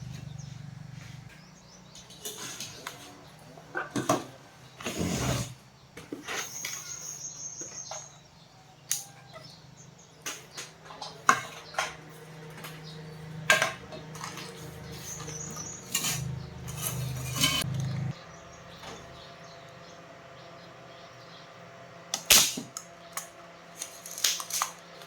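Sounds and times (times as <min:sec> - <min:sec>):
metal tools clinking: 0:13.5 - 0:17.8.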